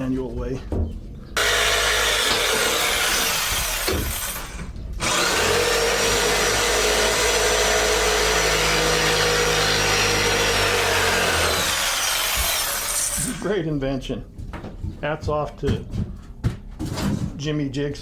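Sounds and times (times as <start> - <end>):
electric jigsaw cutting wood: 1.4 - 13.5.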